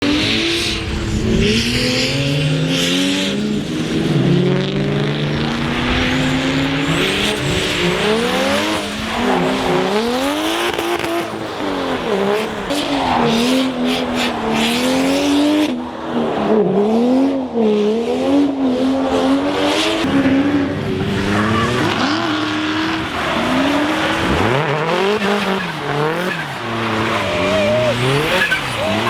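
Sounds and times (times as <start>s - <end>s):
car engine revving hard: 0.0s - 15.8s, 17.8s - 29.0s
tyres rushing: 20.1s - 29.0s.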